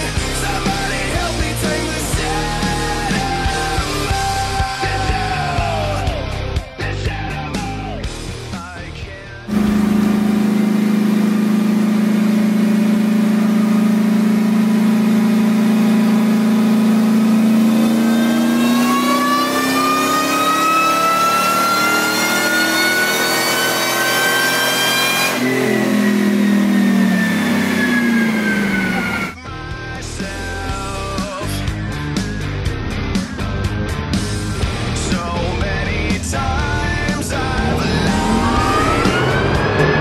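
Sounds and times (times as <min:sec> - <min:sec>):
car engine: 0:09.4 - 0:29.4, 0:31.9 - 0:40.0
supercharger whine: 0:09.5 - 0:29.4, 0:31.9 - 0:40.0.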